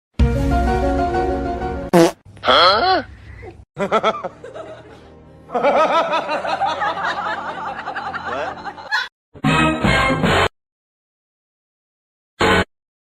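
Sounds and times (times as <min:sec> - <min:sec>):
music: 0:00.2 - 0:02.0, 0:04.0 - 0:10.5, 0:12.4 - 0:12.7
people laughing: 0:03.8 - 0:09.1.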